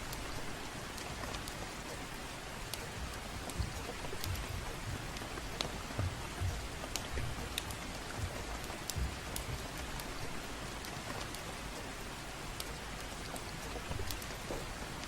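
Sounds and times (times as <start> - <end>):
gentle rain: 0.0 - 15.0
soft low thuds: 2.9 - 10.4
sharp crackles: 12.5 - 15.0.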